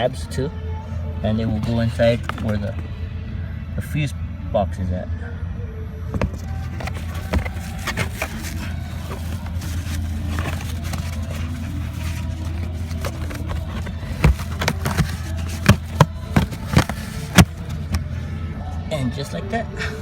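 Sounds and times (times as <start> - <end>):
plastic tabs clicking into place: 6.2 - 18.1
plastic trim being handled: 6.2 - 18.2.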